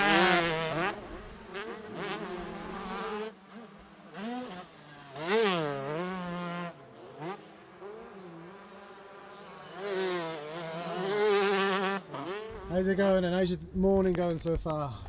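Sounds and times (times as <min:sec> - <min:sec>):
motocross bike engine buzzing: 0:00.0 - 0:13.4.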